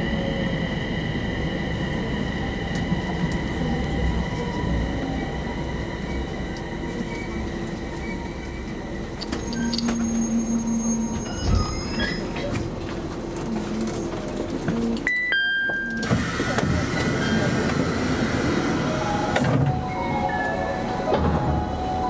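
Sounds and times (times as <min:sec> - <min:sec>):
electric train braking to a stop: 0:00.0 - 0:12.5, 0:15.8 - 0:22.0
high squeal: 0:09.3 - 0:12.3.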